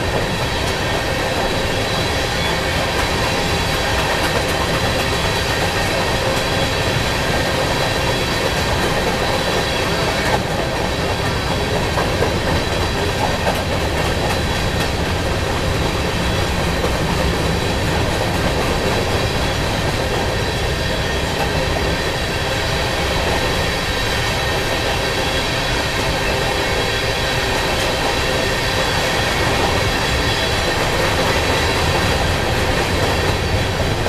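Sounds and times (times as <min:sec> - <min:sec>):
freight train wheels rumbling: 0:00.0 - 0:34.0.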